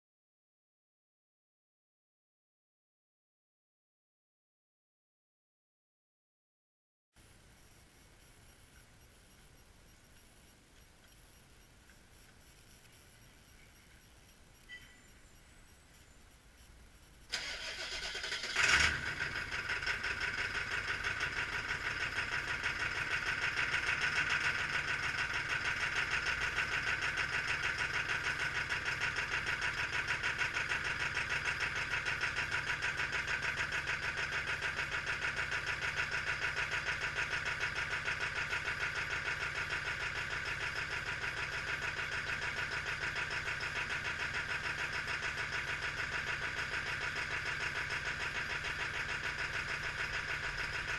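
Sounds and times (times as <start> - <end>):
diesel engine cranking: 17.3 - 50.9
diesel engine idling: 17.3 - 50.9.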